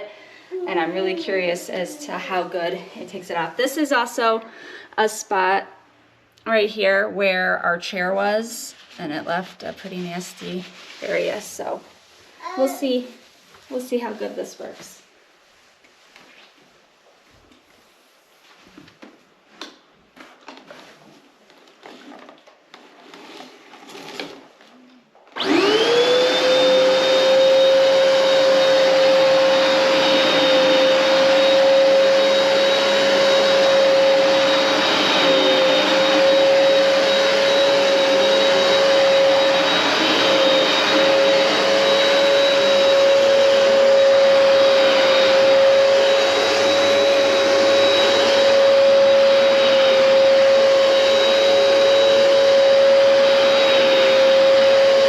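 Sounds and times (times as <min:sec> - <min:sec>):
carpet cleaner motor whine: 0:25.3 - 0:55.0.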